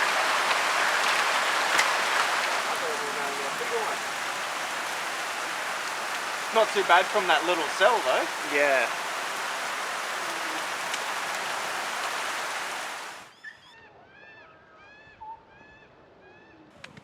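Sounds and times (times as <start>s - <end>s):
birds chirping: 0.0s - 13.2s
heavy rain: 0.0s - 13.3s.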